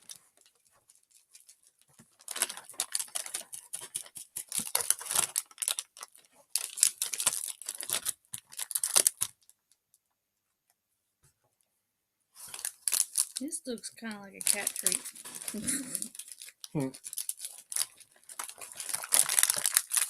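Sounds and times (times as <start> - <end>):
plastic packet crinkling: 0.0 - 9.5, 12.4 - 20.0
dry noodles crushed by hand: 1.4 - 9.4, 12.5 - 13.4, 14.5 - 20.0.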